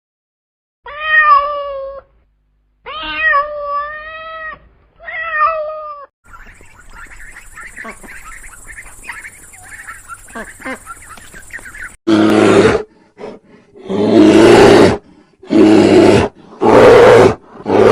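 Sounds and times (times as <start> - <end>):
cat meowing: 2.9 - 6.1.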